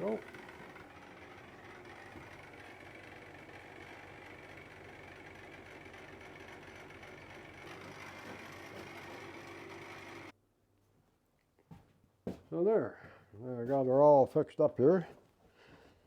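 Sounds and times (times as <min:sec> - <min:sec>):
electric motor humming: 0:00.0 - 0:10.3.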